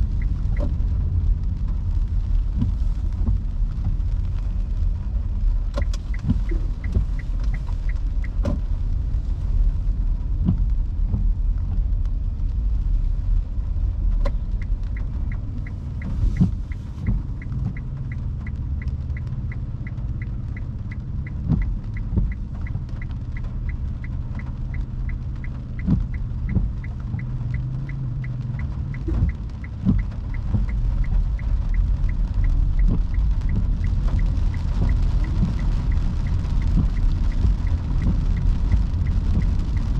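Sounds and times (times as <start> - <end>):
raindrop taps: 0.0 - 39.9
road and tyre rumble: 0.0 - 39.9
fast regular ticking: 14.2 - 39.9.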